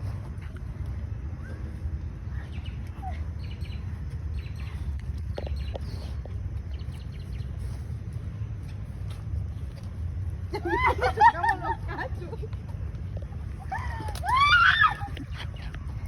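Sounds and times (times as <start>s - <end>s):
steady low rumble: 0.0s - 16.0s
faint bird chirps: 1.4s - 7.6s.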